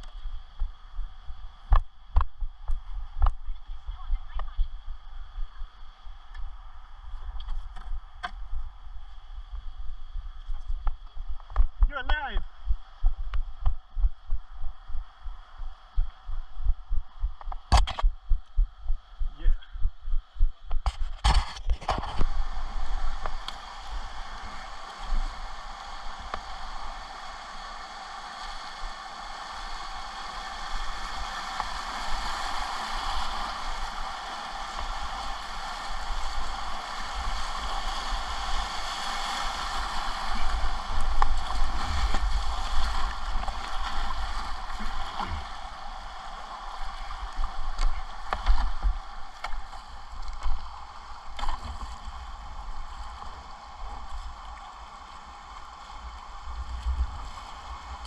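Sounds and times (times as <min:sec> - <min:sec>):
rumbling buffets on microphone: 0:00.0 - 0:27.1, 0:30.6 - 0:54.4, 0:56.0 - 0:58.0
whitewater rushing and splashing: 0:21.8 - 0:58.0.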